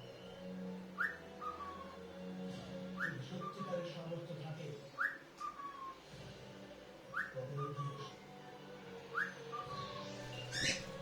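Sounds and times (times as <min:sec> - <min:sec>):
cockatiel whistling: 0:01.0 - 0:01.8, 0:05.0 - 0:06.0, 0:07.1 - 0:08.1, 0:09.1 - 0:11.0.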